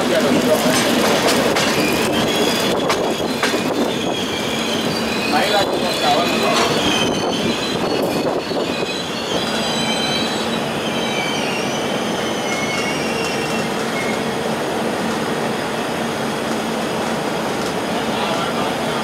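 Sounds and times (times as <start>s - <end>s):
train rumbling on rails: 0.0s - 19.0s
high-pitched wheel squeal: 1.7s - 14.3s.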